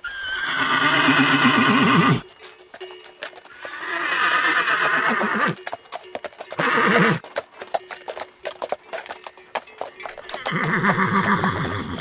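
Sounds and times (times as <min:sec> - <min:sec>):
horse whinnying: 0:00.0 - 0:02.2, 0:03.6 - 0:05.6, 0:06.6 - 0:07.2, 0:10.5 - 0:12.0
hooves clopping: 0:00.0 - 0:12.0.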